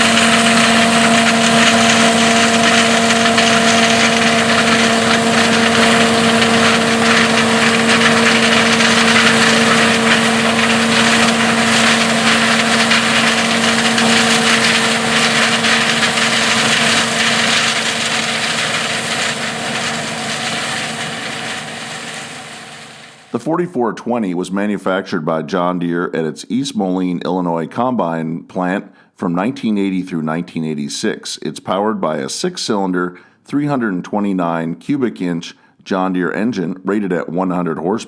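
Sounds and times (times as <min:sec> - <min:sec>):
combine harvester engine droning: 0:00.0 - 0:23.3.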